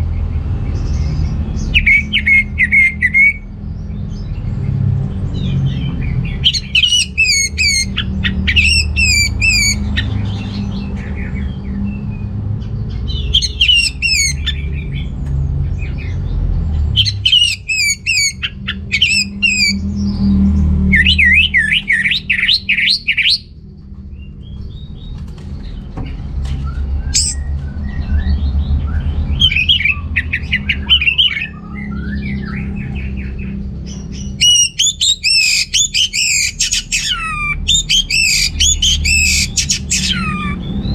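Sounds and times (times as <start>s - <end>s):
low rumble: 23.4s - 34.4s.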